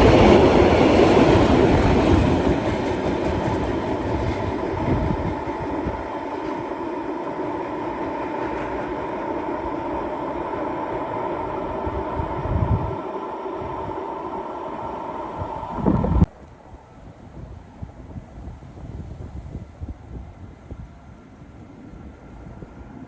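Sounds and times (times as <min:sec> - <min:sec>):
train rumbling past: 0:00.0 - 0:23.0
humming tones: 0:04.8 - 0:16.3.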